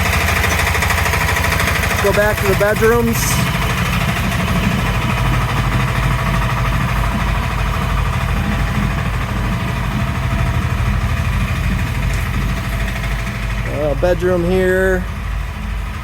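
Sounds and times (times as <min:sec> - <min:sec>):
engine low drone: 0:00.0 - 0:16.0.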